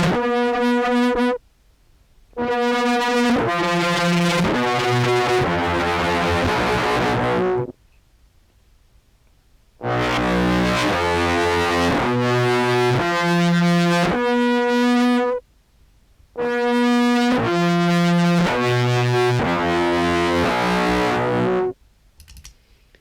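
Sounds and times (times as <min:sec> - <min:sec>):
distorted contrabass clarinet: 0:00.0 - 0:01.4, 0:02.4 - 0:07.7, 0:09.8 - 0:15.4, 0:16.4 - 0:21.7.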